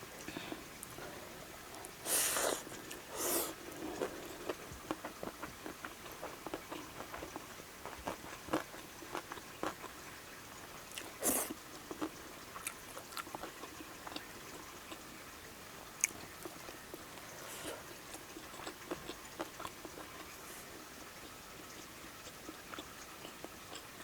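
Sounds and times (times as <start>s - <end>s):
wet chewing with mouth clicks: 1.7s - 9.9s, 16.0s - 20.6s, 21.6s - 24.0s.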